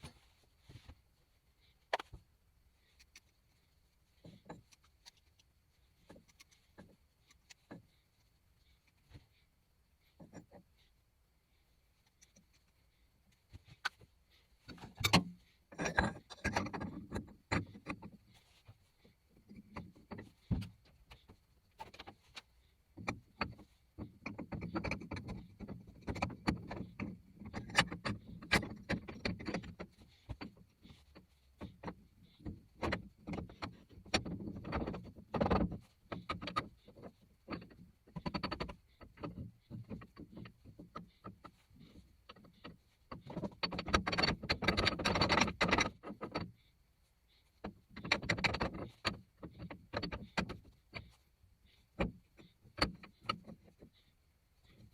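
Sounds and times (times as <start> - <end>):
hard objects knocking and rattling: 14.7 - 18.6, 23.0 - 46.5.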